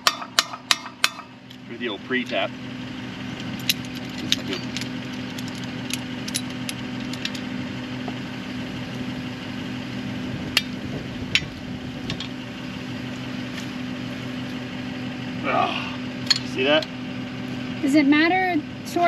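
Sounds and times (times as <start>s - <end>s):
engine idling: 0.0s - 19.0s
metal tools clicking and clinking: 3.4s - 7.5s, 16.2s - 16.9s.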